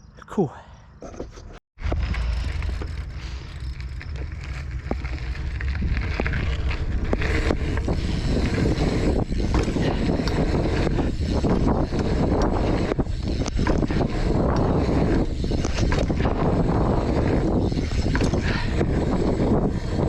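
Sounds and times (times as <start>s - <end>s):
bike clicks and rattles: 1.0s - 20.0s
wind buffeting microphone: 1.8s - 20.0s.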